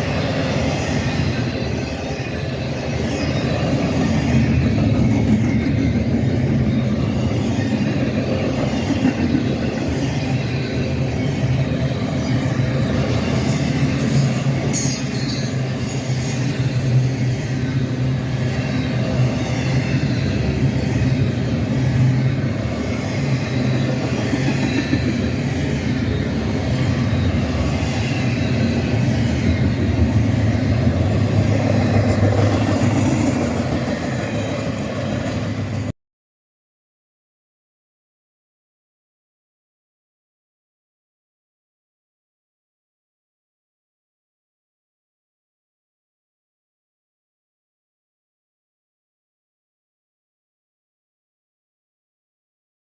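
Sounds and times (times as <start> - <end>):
wheel screeching on rail: 0.0 - 35.9
freight train rumbling past: 0.0 - 36.0.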